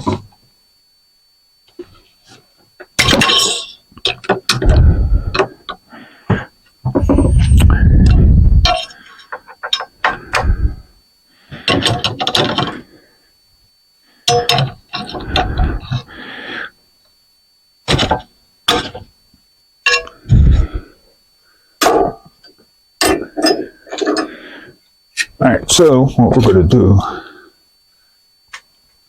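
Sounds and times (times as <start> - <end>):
metal parts clinking: 3.0 - 4.8, 14.3 - 15.5, 19.8 - 20.2.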